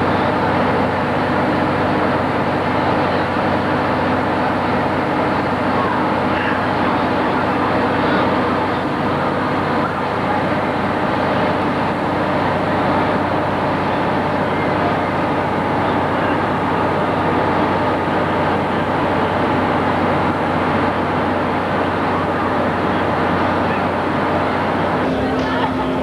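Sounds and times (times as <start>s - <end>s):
vehicle engine drone: 20.4s - 26.0s.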